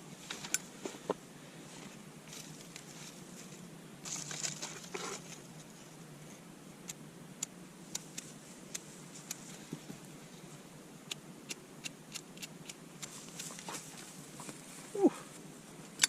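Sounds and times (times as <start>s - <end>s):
fire crackling: 6.8s - 14.9s.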